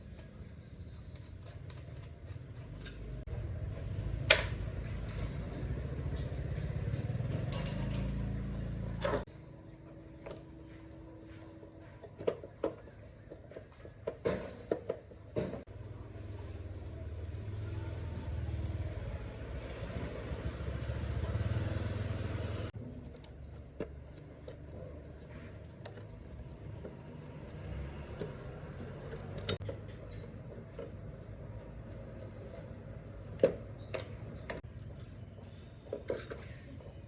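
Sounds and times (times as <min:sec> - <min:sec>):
low motor running: 0:02.6 - 0:12.0, 0:15.7 - 0:33.2.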